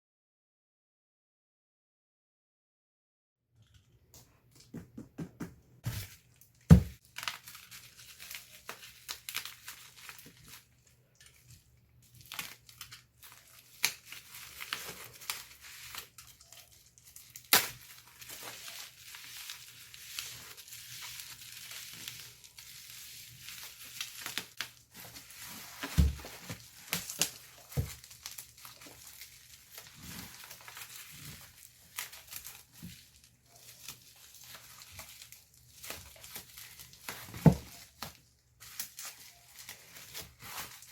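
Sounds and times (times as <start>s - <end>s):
wrapping crinkling and tearing: 5.9s - 40.9s.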